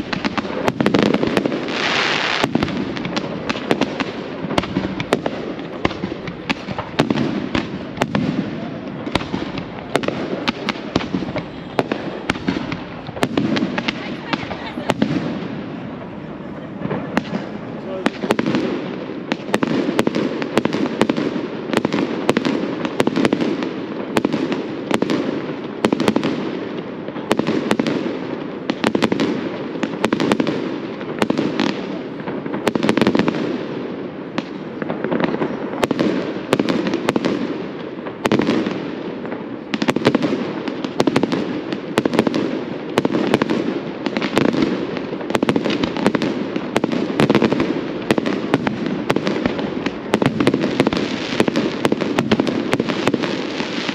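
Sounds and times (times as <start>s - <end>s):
fireworks bangs and crackles: 0.0s - 53.9s
fireworks rumble: 0.0s - 53.9s.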